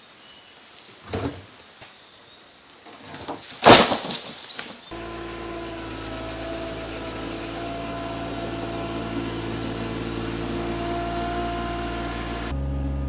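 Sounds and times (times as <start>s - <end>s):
car engine idling: 4.9s - 13.0s.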